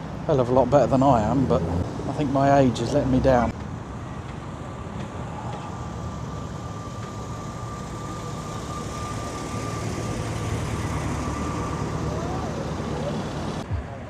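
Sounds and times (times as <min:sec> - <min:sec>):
car engines idling: 0:00.0 - 0:13.7
thin high whine: 0:03.8 - 0:14.0.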